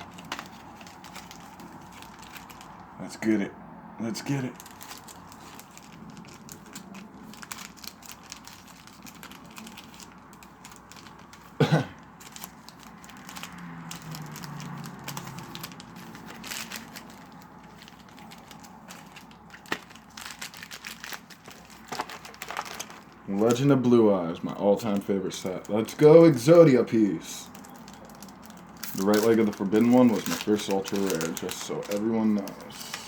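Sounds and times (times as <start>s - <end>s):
cards being handled: 0.0s - 2.8s, 4.8s - 23.7s, 27.0s - 33.0s
foil wrapper tearing and crinkling: 0.0s - 2.9s, 4.6s - 33.0s
person coughing: 11.6s - 12.0s.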